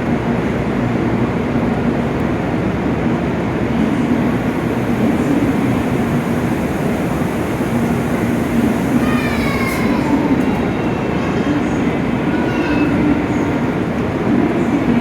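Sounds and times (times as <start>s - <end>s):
train low rumbling: 0.0s - 15.0s.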